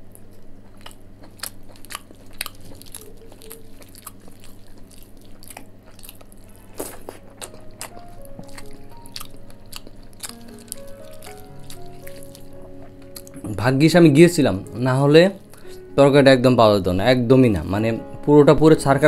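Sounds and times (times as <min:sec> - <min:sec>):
person chewing and biting food: 0:00.0 - 0:13.5
fingers squishing rice: 0:00.7 - 0:13.4
soft background music: 0:00.8 - 0:19.0.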